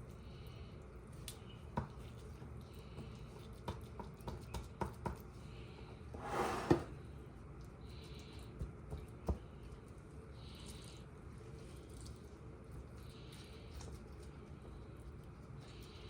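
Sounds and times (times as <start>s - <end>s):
ground meat squishing by hand: 7.4s - 16.0s.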